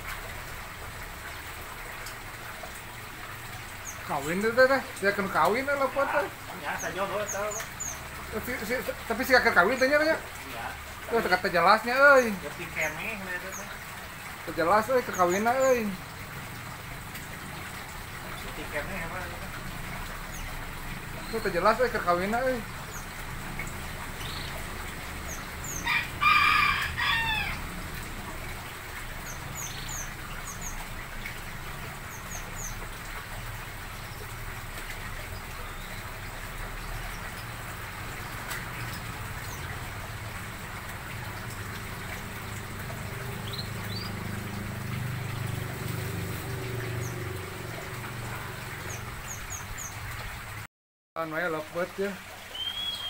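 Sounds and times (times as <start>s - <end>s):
loud bird call: 52.5s - 53.0s.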